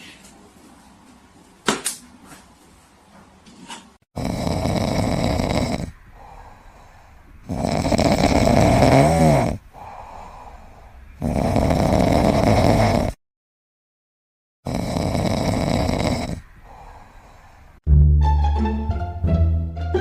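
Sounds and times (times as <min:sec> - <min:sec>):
animal snoring loudly: 0:04.2 - 0:06.5, 0:07.4 - 0:13.2, 0:14.6 - 0:17.0.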